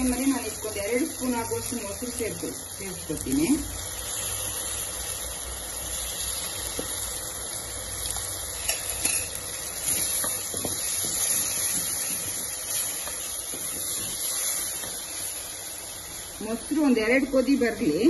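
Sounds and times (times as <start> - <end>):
masala sizzling in oil: 0.0 - 18.0
wooden spoon knocking pot: 10.2 - 14.2.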